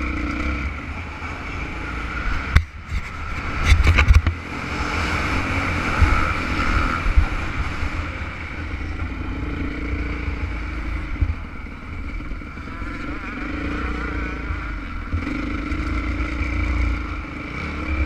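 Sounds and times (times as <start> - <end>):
wind on microphone: 1.7 - 9.5.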